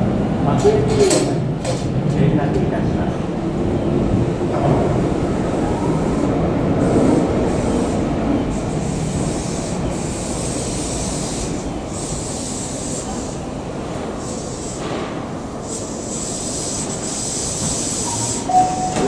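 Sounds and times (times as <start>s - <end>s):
electric train slowing to a stop: 4.3s - 19.0s
thin high hiss: 15.6s - 19.0s.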